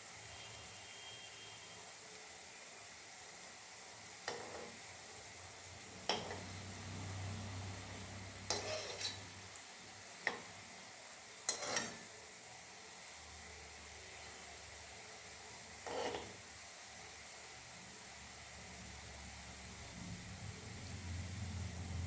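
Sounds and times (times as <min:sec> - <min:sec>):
food sizzling in oil: 0:00.0 - 0:22.0
spoon knocking against pan: 0:04.3 - 0:04.7, 0:06.1 - 0:06.5.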